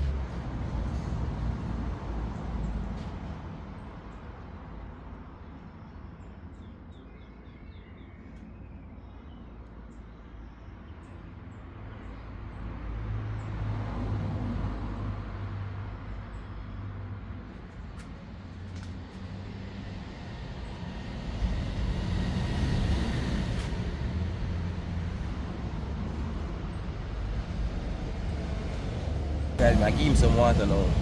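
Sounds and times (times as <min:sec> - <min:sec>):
motor vehicle rumble: 0:00.0 - 0:03.9, 0:14.5 - 0:31.0.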